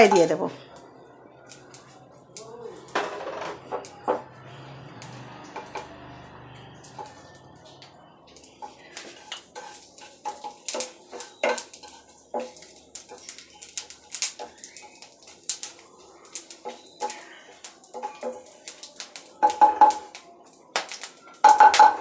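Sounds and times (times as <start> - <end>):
spices crackling in hot oil: 0.0 - 22.0
metal spoon scraping a pan: 5.0 - 18.8.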